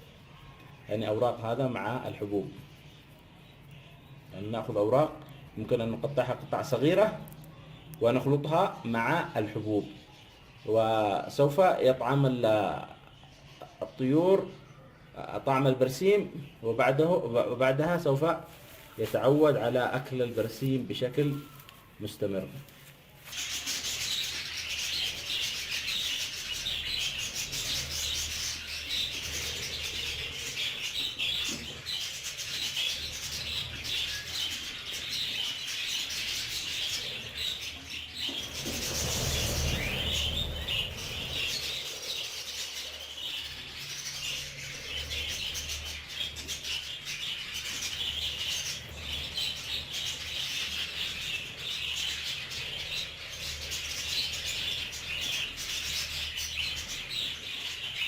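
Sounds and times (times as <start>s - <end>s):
rustling: 18.4s - 19.6s, 21.2s - 25.4s
budgerigars chattering: 23.3s - 58.0s.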